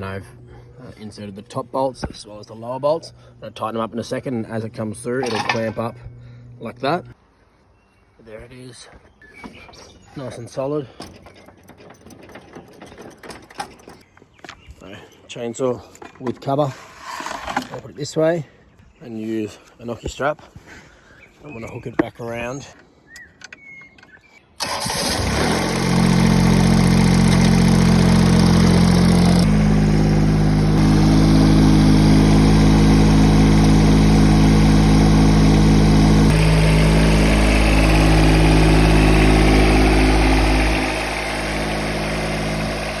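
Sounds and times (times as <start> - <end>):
small engine running: 24.6 - 43.0.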